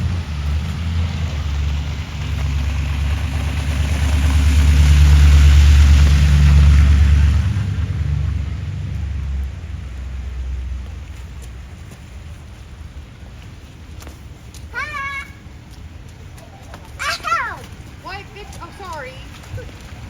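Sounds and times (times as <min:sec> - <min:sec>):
vehicle passing by: 0:00.0 - 0:11.8.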